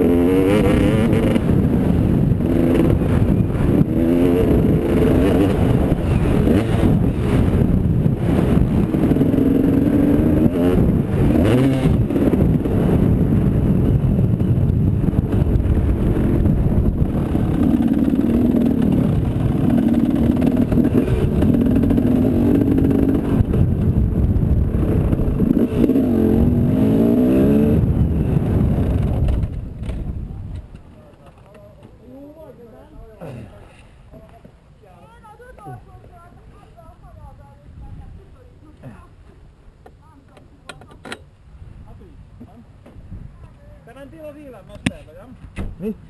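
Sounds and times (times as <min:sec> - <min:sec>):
motorcycle engine revving: 0:00.0 - 0:30.3.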